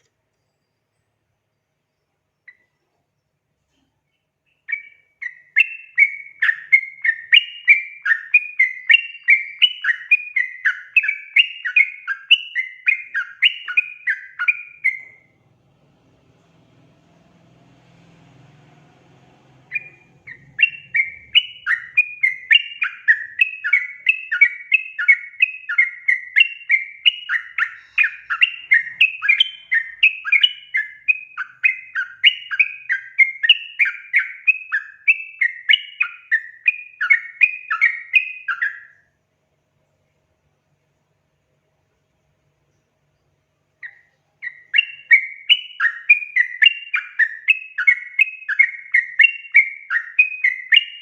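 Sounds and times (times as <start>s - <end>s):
faint hum: 12.6s - 33.2s, 38.7s - 45.1s.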